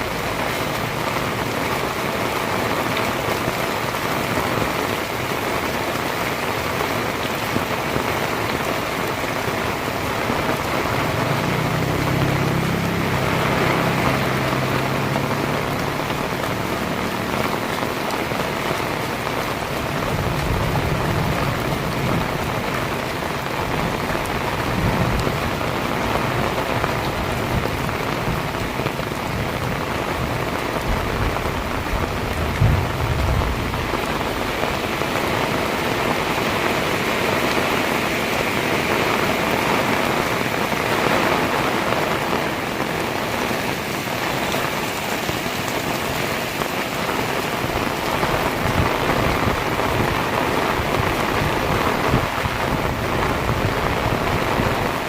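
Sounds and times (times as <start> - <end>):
heavy rain pouring: 0.0 - 55.0
low thunder rumbles: 13.4 - 36.4.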